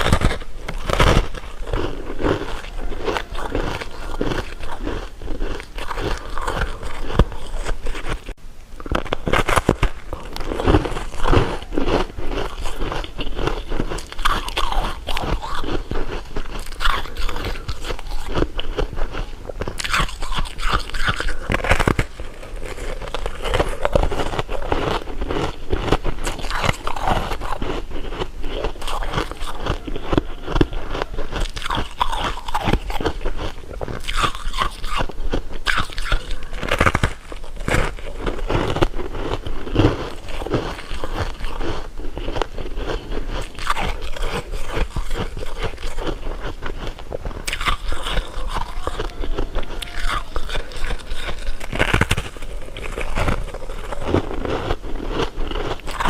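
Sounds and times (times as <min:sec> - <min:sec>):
person chewing crunchy candy: 0:00.0 - 0:56.0.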